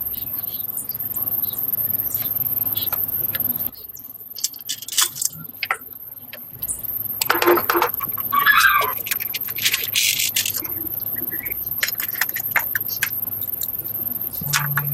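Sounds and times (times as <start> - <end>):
metal parts and tools clinking: 4.4 - 6.5, 7.2 - 10.8
sharp clicks: 4.4 - 14.9.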